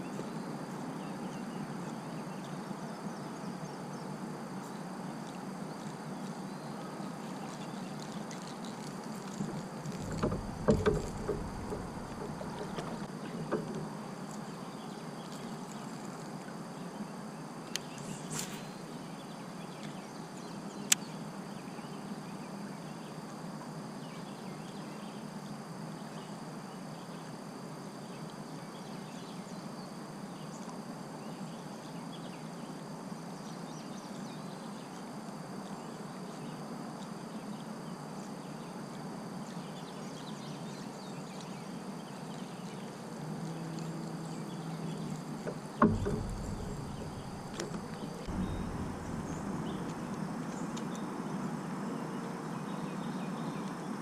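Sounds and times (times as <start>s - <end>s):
outdoor background noise: 0.0s - 54.0s
heavy knock: 10.0s - 13.8s, 45.4s - 50.5s
sharp click: 45.5s - 50.9s.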